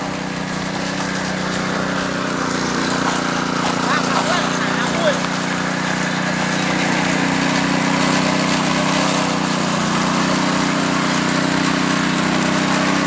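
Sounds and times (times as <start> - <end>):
small petrol engine running: 0.0 - 13.0.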